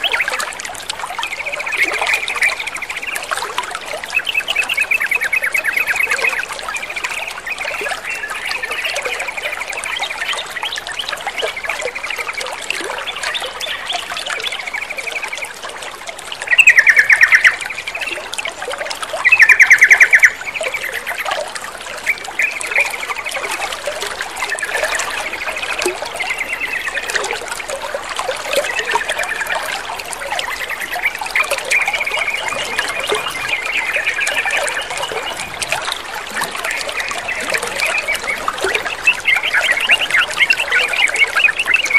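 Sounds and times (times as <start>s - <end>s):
bulbuls chattering and singing: 0.0s - 41.9s
trickling water: 0.0s - 41.9s
rapid rattling bird calls: 16.4s - 41.9s.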